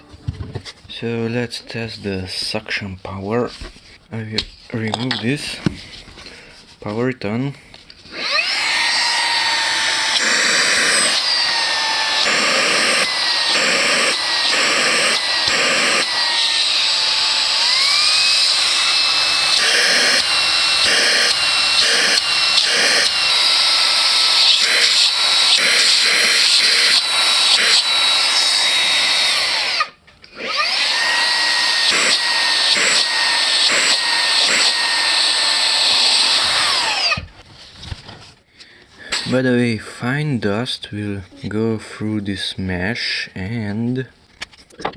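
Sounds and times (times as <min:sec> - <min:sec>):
handheld vacuum cleaner whining: 0:08.1 - 0:37.3, 0:39.1 - 0:39.4.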